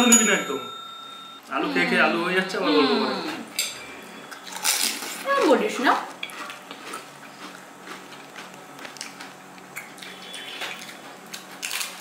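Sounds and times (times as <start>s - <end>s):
spoon clinks: 0.0s - 1.4s
wet chewing: 6.2s - 12.0s.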